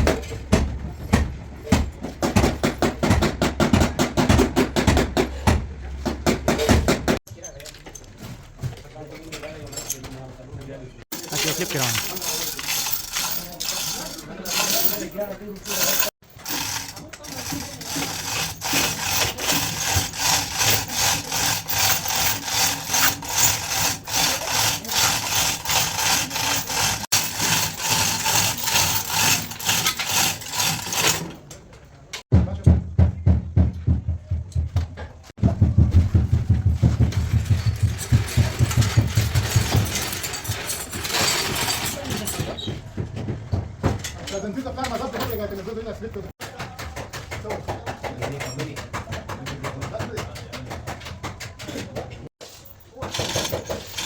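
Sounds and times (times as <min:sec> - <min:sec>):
hand tool scraping a panel: 0:15.8 - 0:31.3.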